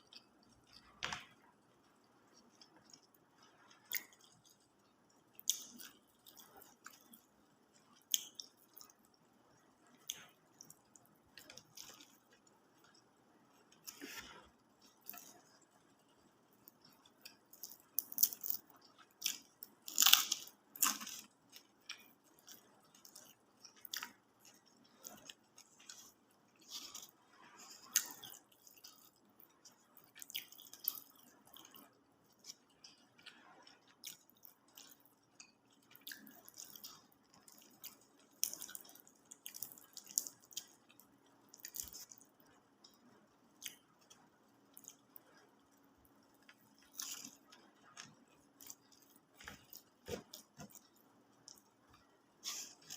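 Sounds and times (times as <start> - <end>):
wet chewing and mouth smacking: 10.0 - 52.9.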